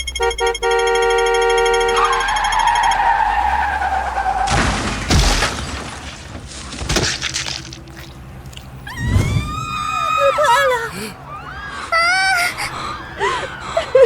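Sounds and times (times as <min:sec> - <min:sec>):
car horn blaring: 0:00.0 - 0:03.9
tyres screeching: 0:00.0 - 0:05.2, 0:06.2 - 0:14.0
car crash impacts: 0:03.5 - 0:08.4.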